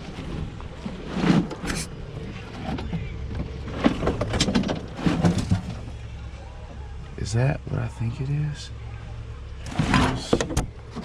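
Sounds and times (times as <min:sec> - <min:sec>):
junk clattering and rustling: 0:00.0 - 0:06.2, 0:09.6 - 0:11.0
low steady rumble: 0:00.0 - 0:11.0.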